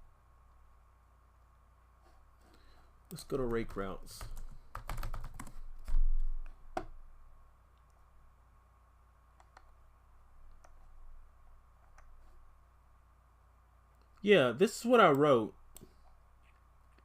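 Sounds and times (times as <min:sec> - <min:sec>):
computer keyboard typing: 0:03.4 - 0:06.0.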